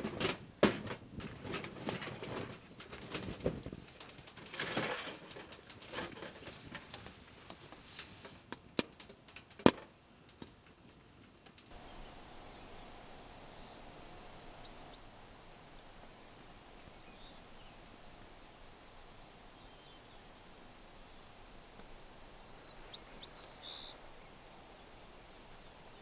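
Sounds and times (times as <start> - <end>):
faint background hiss: 0.0 - 26.0
small bird calling: 11.7 - 26.0.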